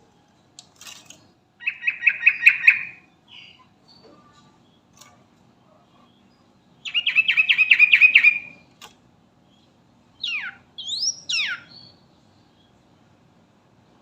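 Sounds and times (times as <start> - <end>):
bird singing: 1.6 - 8.8, 9.4 - 13.2.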